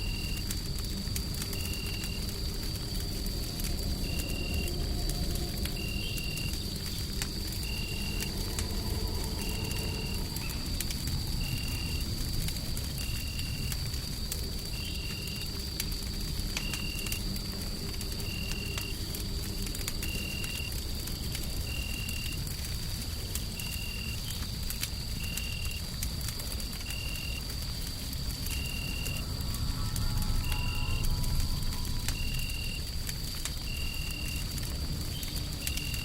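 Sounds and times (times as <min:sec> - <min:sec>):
low rumble of white noise: 0:00.0 - 0:36.0
wood fire crackling and popping: 0:00.0 - 0:36.0
faint high whine: 0:28.3 - 0:34.5.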